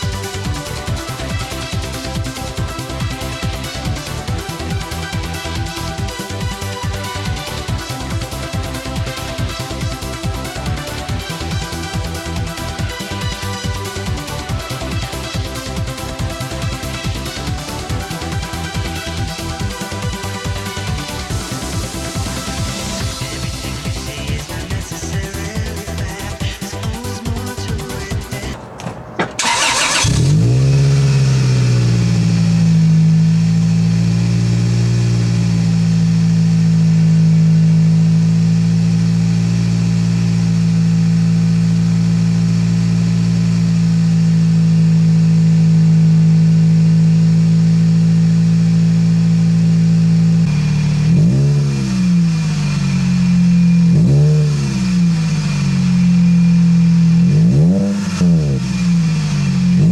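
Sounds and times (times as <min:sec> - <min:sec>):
car engine idling: 0:00.0 - 0:59.9
car engine revving: 0:27.6 - 0:59.9.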